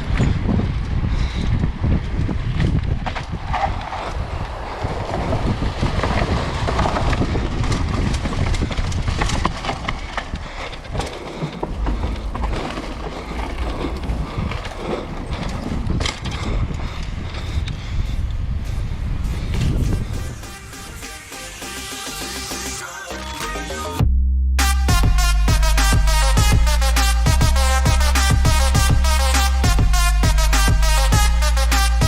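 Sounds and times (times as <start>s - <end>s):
bike rattling over rough ground: 0.0s - 17.7s
wind rumbling on microphone: 0.0s - 21.3s.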